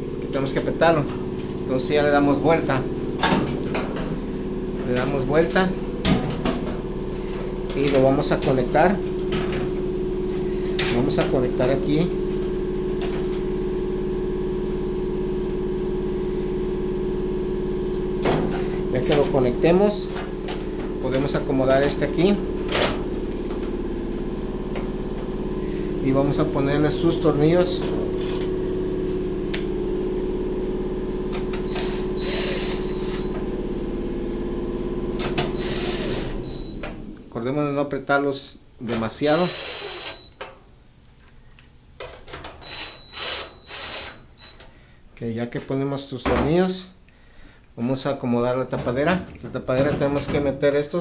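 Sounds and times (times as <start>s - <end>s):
steady machine hum: 0.0s - 51.0s
electric screwdriver motor running: 31.6s - 33.3s, 35.4s - 36.6s, 39.3s - 40.3s, 42.6s - 44.6s.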